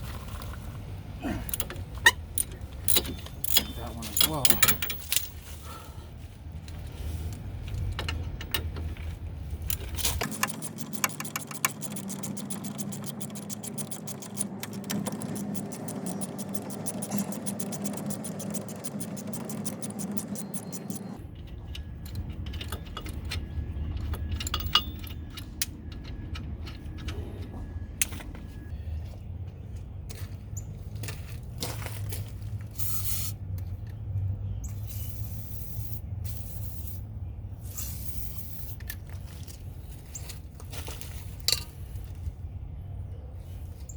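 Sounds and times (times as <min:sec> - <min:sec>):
ratchet wrench clicking: 0:01.5 - 0:05.4, 0:09.6 - 0:27.2, 0:34.7 - 0:37.0, 0:37.6 - 0:39.0
metal tools clinking on car parts: 0:01.5 - 0:05.8, 0:07.6 - 0:28.7, 0:37.7 - 0:42.2.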